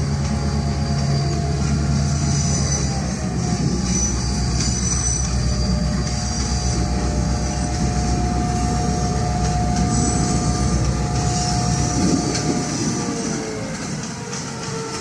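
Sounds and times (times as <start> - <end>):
high-pitched wheel squeal: 0.0 - 15.0
train rumbling: 0.0 - 15.0.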